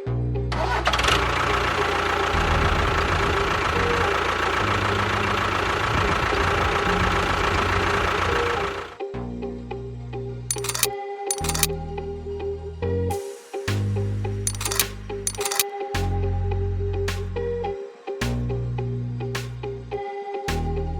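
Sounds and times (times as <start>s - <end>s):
small motor running: 10.5s - 11.7s.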